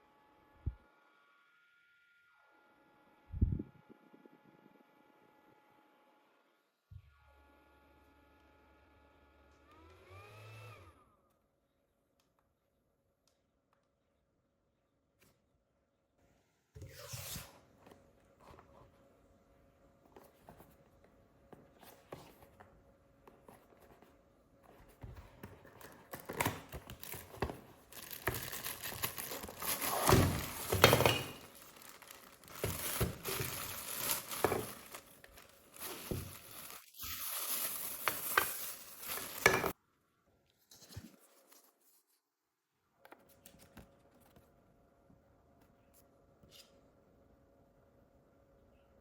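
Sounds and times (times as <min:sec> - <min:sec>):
plastic packaging crinkling and tearing: 0:25.7 - 0:39.8.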